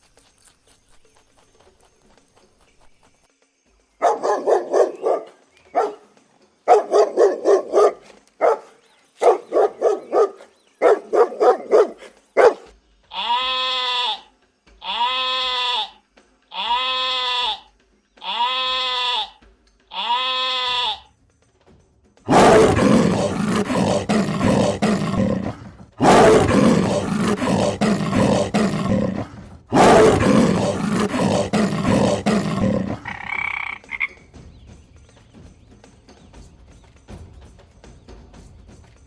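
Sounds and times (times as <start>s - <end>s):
animal roaring: 22.3s - 33.4s
animal calls rising and falling: 22.3s - 33.8s.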